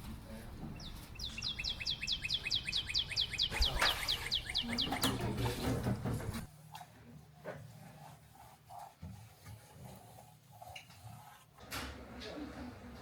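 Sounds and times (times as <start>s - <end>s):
bird singing fast trill: 0.8s - 5.2s.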